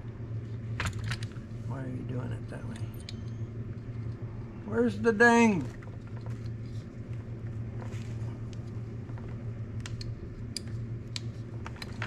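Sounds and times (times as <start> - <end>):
steady low hum: 0.0 - 12.0
clicks and taps of small parts: 9.8 - 12.0.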